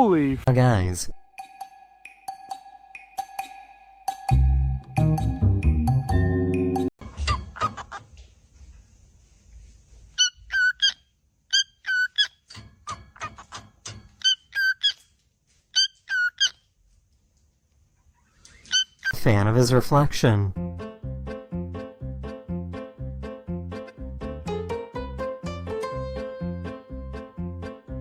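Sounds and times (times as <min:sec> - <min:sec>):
background music: 0:00.0 - 0:06.9, 0:20.2 - 0:28.0
bird chirping: 0:10.2 - 0:15.1, 0:15.7 - 0:16.6, 0:18.0 - 0:19.2.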